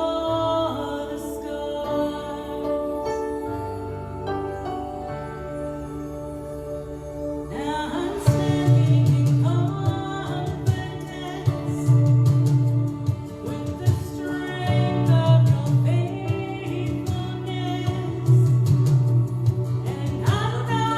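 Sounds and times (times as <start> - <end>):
held keyboard chords: 0.0 - 20.9
bass and drums beat: 8.3 - 20.9.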